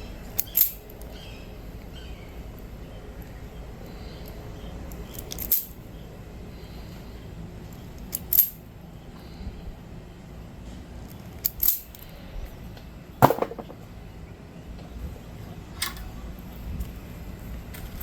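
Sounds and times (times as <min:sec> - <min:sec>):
hand tools clicking and knocking: 0:13.2 - 0:13.8.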